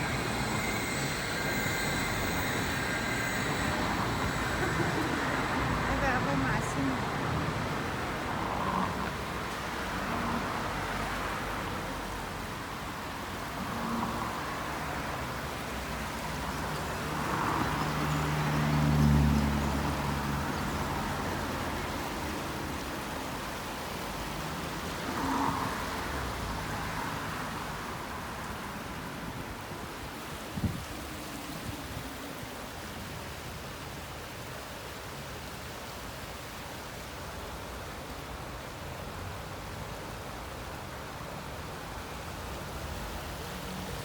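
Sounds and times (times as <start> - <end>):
suspension railway rushing: 0.0 - 31.7.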